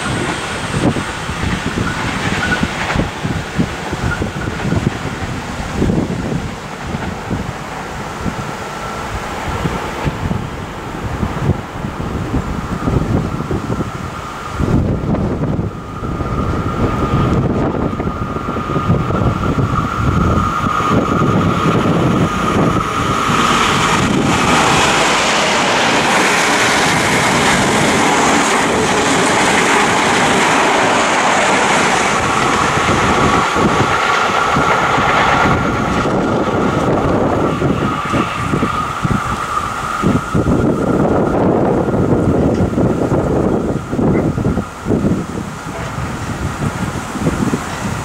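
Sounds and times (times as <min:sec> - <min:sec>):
high whine of train power car: 0:00.0 - 0:48.0
rush of passing train carriages: 0:00.0 - 0:48.0
wind buffeting microphone: 0:00.0 - 0:48.0.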